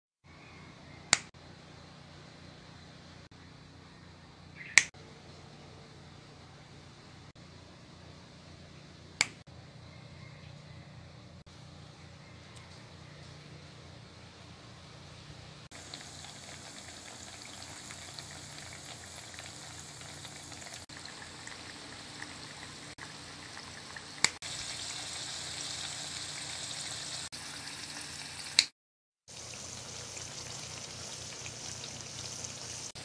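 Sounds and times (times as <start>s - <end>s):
food deep-frying in oil: 15.7s - 28.7s, 29.3s - 33.0s.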